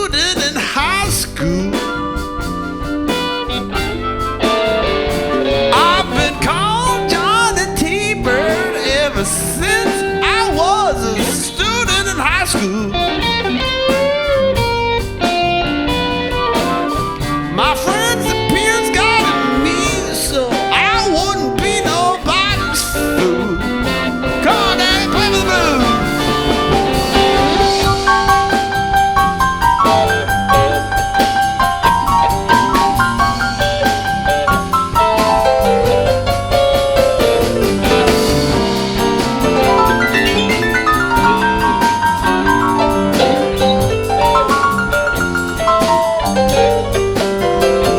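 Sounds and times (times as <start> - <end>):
drum kit: 0.0 - 47.9
live band playing instrumental: 0.0 - 47.9
lead instrument bending notes: 16.1 - 47.9.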